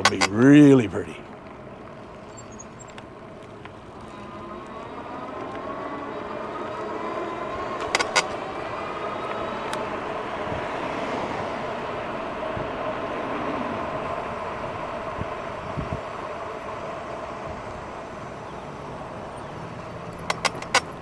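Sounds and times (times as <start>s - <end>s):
sharp clacks: 0.0s - 5.8s, 7.6s - 9.9s, 20.0s - 21.0s
electric motor whining: 0.0s - 21.0s
tyre noise: 0.0s - 21.0s
wind noise: 0.0s - 21.0s.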